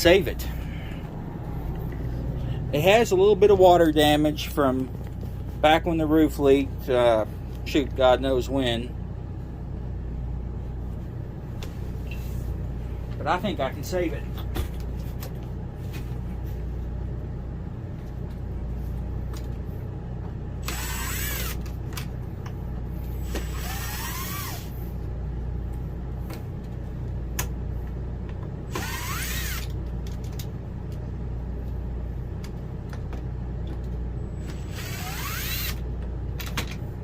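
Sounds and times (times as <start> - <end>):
steady low hum: 0.0 - 37.0
power drill running: 20.6 - 21.7, 23.2 - 24.7, 28.7 - 29.8, 34.4 - 35.8.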